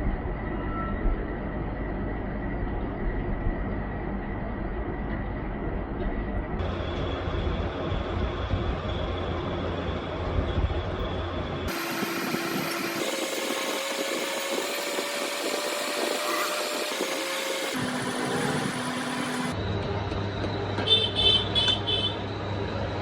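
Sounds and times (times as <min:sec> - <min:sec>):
metal lathe humming: 0:11.7 - 0:19.6.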